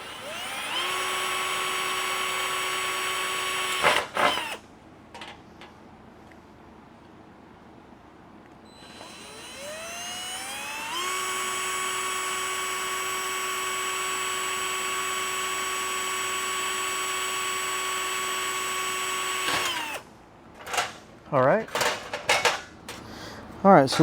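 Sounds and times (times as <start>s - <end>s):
electric drill drilling: 0.0s - 4.6s, 8.8s - 20.0s.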